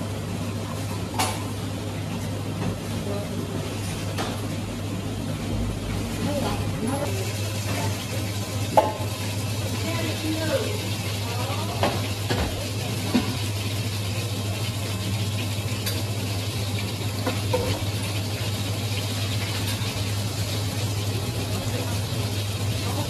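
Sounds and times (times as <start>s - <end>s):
low machine hum: 0.0s - 23.0s
food sizzling in frying: 0.4s - 23.0s.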